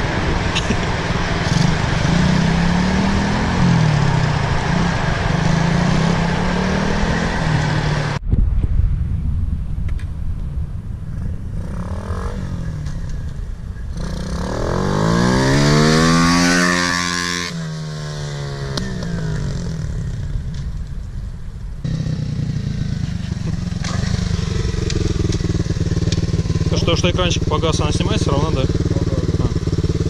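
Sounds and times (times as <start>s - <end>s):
motorcycle engine running: 0.0s - 8.2s, 21.8s - 30.0s.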